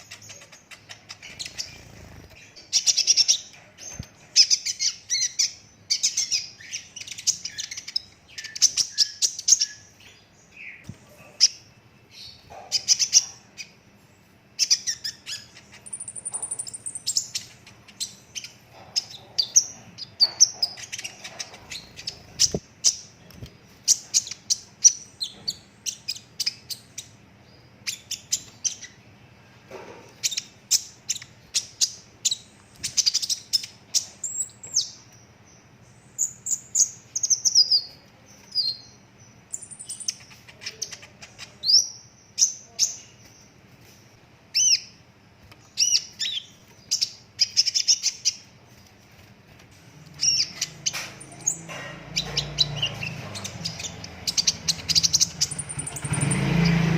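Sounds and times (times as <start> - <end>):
bird chirping trills: 0.0 - 43.7, 44.5 - 56.9.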